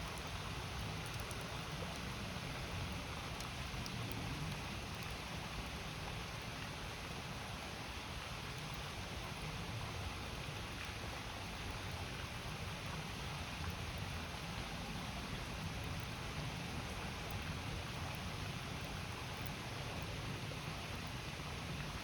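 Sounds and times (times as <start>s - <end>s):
campfire crackling: 0.0s - 6.7s.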